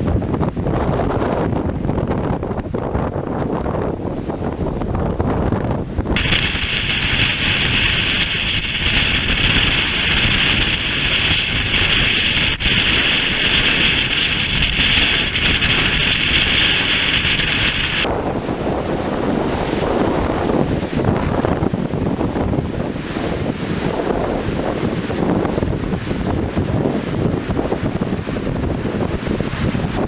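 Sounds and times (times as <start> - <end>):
wind buffeting microphone: 0.0 - 30.0
steady high hiss: 6.2 - 18.1.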